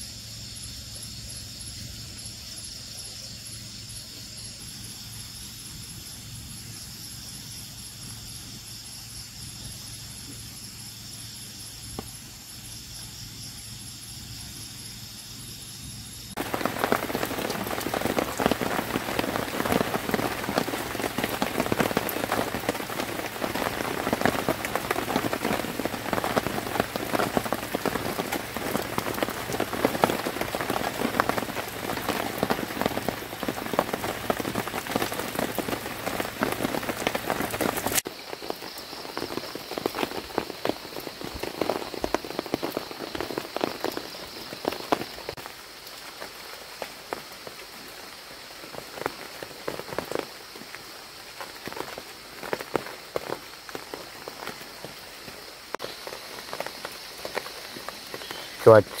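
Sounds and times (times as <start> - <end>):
heavy rain on a tarp: 16.2 - 59.0.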